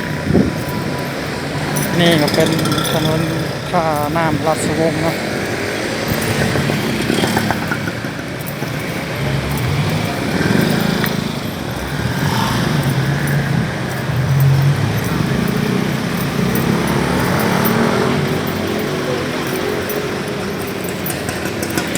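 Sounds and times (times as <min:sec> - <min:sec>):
street din: 0:00.0 - 0:21.9
motorcycle engine passing: 0:04.3 - 0:21.9.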